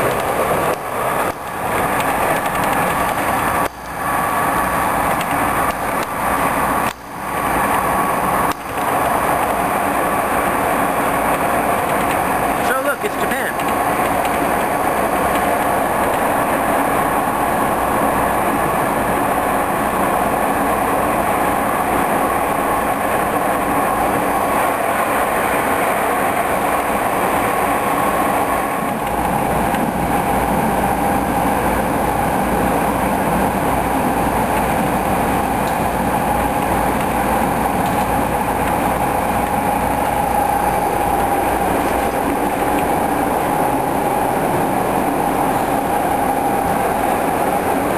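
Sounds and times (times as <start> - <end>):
passenger train rumbling on track: 0.0 - 47.9
train hum: 0.0 - 47.9.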